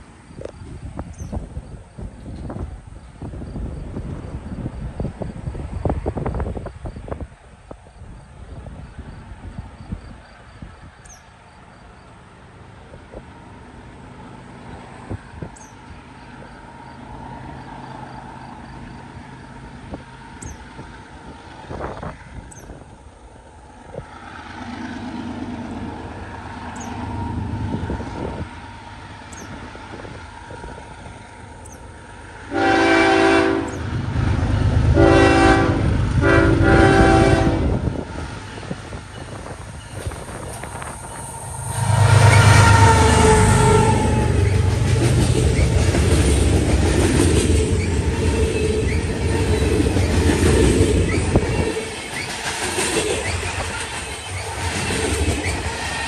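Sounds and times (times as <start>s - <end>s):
diesel locomotive engine rumbling: 0.0s - 56.0s
wheel and rail noise: 0.0s - 56.0s
train air horn blasts: 32.4s - 38.0s, 40.6s - 45.2s.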